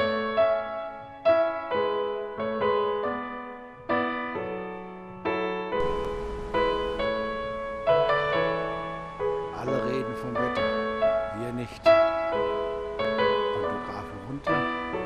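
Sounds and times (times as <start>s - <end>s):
piano chords ringing: 0.0s - 15.0s
low rumbling hiss: 5.8s - 15.0s.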